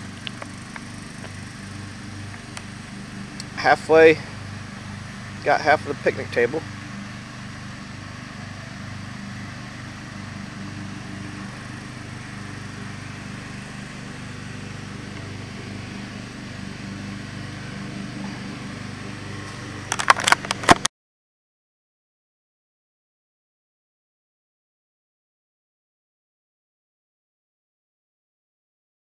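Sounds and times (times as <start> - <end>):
engine humming: 0.0 - 20.9.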